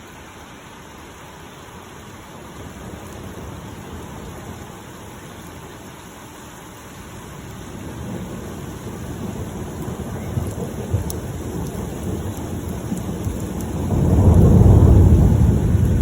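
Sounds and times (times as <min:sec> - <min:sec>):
rain hissing: 0:00.0 - 0:16.0
low rumble of thunder: 0:02.4 - 0:05.4, 0:07.2 - 0:16.0.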